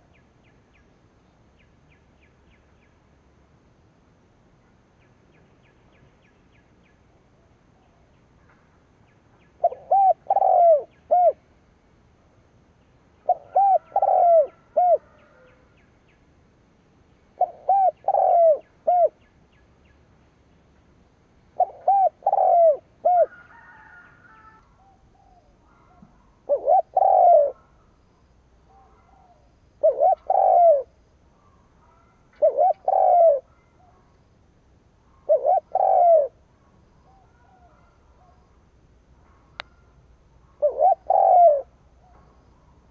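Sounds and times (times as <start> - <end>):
dove cooing: 9.6 - 11.4, 13.2 - 15.7, 17.4 - 19.2, 21.5 - 27.8, 28.6 - 34.0, 35.1 - 36.4, 37.0 - 38.4, 39.3 - 42.9.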